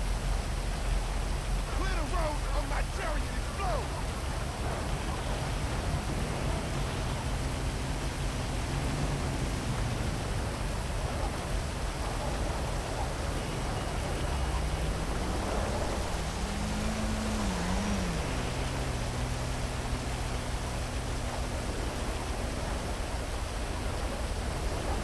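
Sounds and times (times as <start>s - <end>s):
heavy rain hiss: 0.0s - 25.0s
low hum of traffic: 0.0s - 25.0s.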